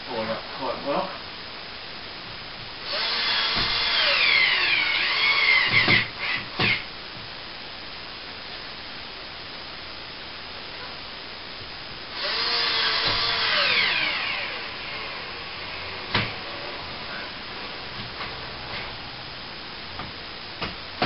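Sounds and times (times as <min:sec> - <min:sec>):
cordless drill driving screw: 0:02.8 - 0:06.8, 0:12.2 - 0:15.2.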